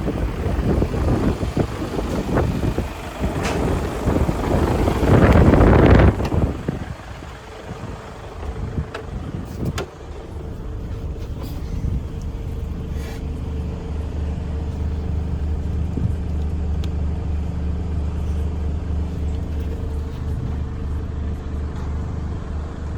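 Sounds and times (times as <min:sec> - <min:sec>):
diesel truck engine idling: 0:00.0 - 0:22.9.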